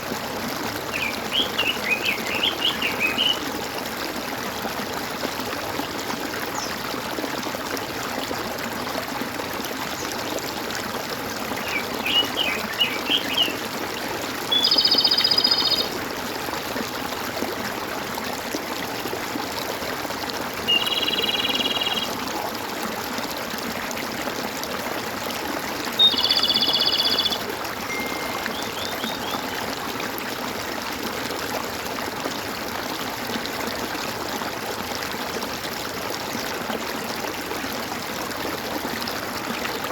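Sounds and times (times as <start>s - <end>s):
running water gurgling: 0.0s - 39.9s
loud buzzy bird calls: 14.5s - 15.9s, 26.0s - 29.7s
bird chirping: 26.0s - 29.7s.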